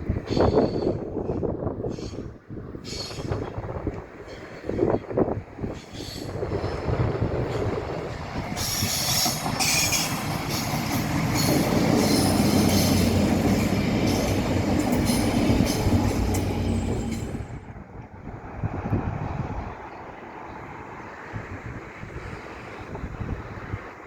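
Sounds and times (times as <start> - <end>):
train wheels rattling and squealing: 0.1 - 17.7.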